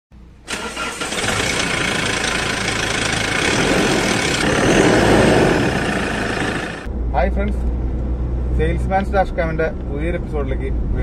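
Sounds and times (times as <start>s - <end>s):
car engine starting and clattering: 0.4s - 8.2s.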